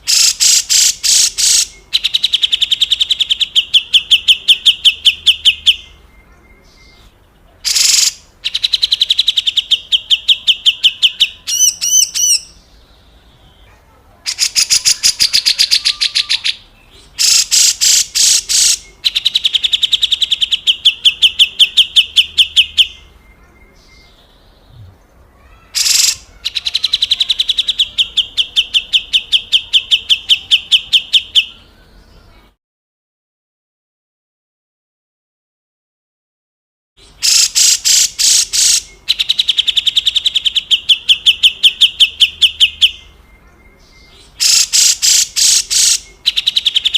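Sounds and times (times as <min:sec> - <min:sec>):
bird harsh rattling call: 0:00.0 - 0:03.2, 0:07.7 - 0:09.4, 0:17.2 - 0:20.7, 0:25.6 - 0:27.1, 0:37.2 - 0:40.0, 0:44.4 - 0:46.9.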